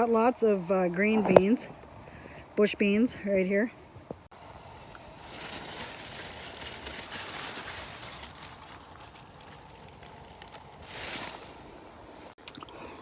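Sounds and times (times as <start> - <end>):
leaves rustling and crackling: 4.3 - 12.4.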